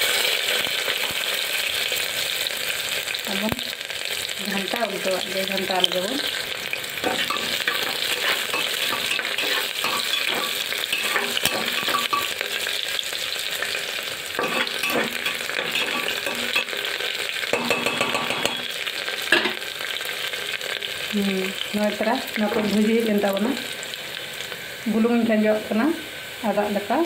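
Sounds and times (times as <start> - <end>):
onions sizzling in hot oil: 0.0 - 27.0
metal spatula knocking pot: 7.0 - 12.4, 14.4 - 16.8, 17.5 - 19.6.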